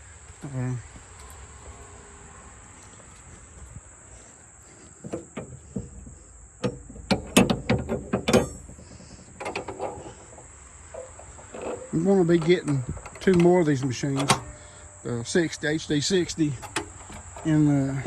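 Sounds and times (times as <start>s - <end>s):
sharp mechanical clicks and knocks: 6.6s - 10.1s.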